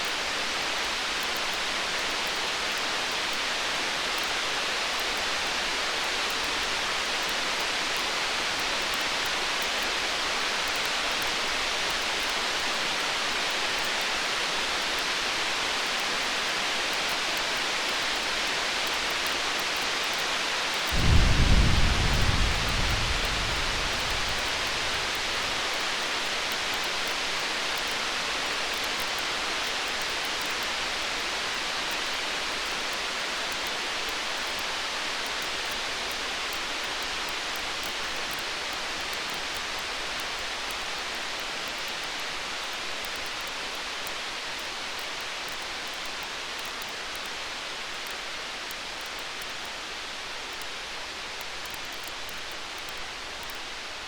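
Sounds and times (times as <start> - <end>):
steady hiss: 18.2 - 54.0
distant thunder rumble: 20.9 - 25.9.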